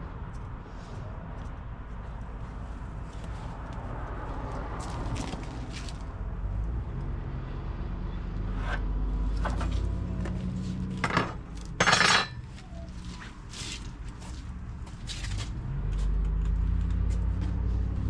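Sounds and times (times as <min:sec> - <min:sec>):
clattering scrape: 0:10.6 - 0:12.7
hard objects knocking and clinking: 0:11.0 - 0:12.4.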